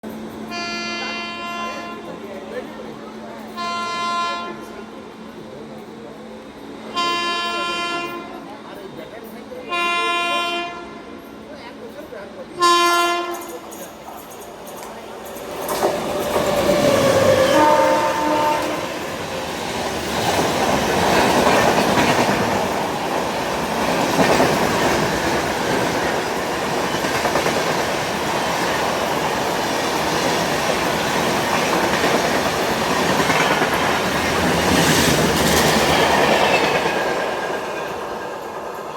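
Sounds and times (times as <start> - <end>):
train horn: 0.5 - 2.1, 3.6 - 4.9, 6.9 - 8.5, 9.7 - 11.2, 12.6 - 13.6, 17.0 - 19.1
train wheels clattering over rail joints: 13.3 - 38.9.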